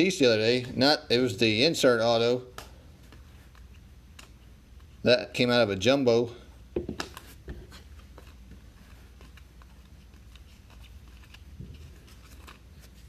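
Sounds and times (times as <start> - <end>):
low room hum: 0.0 - 13.0
trading cards clicking and rustling: 6.9 - 13.0.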